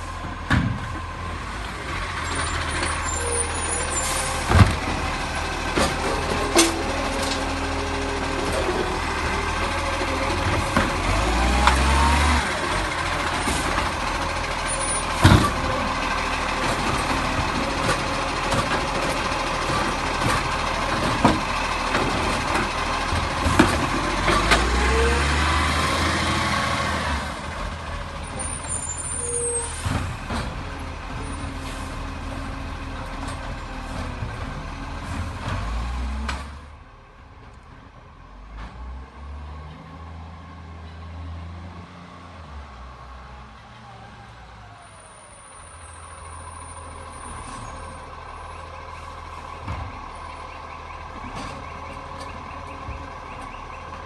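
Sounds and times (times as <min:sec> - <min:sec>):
garbage truck engine: 0:00.0 - 0:54.0
metal clanks and knocks: 0:05.6 - 0:07.7.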